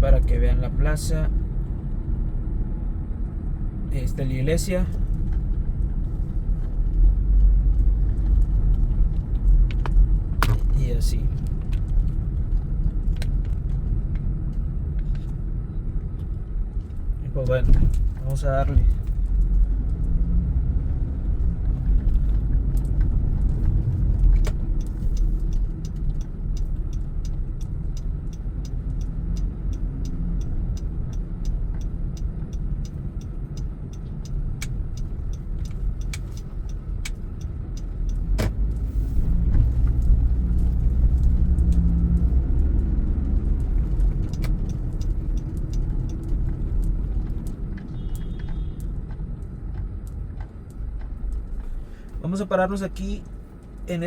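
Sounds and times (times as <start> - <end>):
car engine and road rumble: 0.0 - 54.0
light regular ticking: 21.4 - 54.0.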